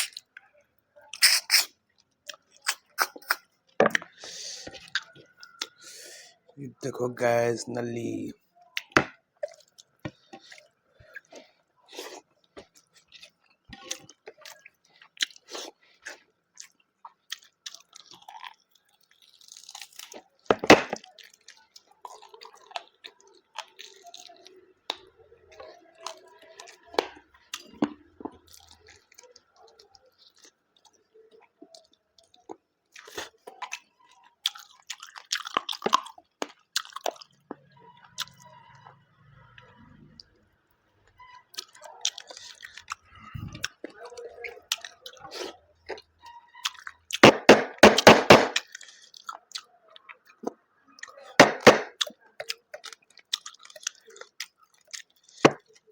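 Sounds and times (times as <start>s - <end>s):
crunchy bites: 0.0s - 0.3s, 2.3s - 5.8s, 46.7s - 49.7s
chewing and mouth clicks: 0.0s - 6.3s, 8.4s - 40.4s, 41.0s - 47.4s, 48.6s - 55.9s.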